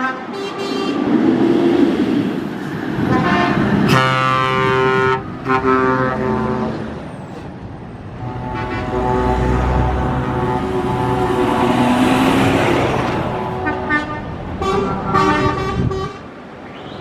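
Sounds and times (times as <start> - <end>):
truck horn blasts: 0.0 - 1.0, 3.1 - 7.0, 8.1 - 16.3
truck engine and road noise: 0.0 - 17.0.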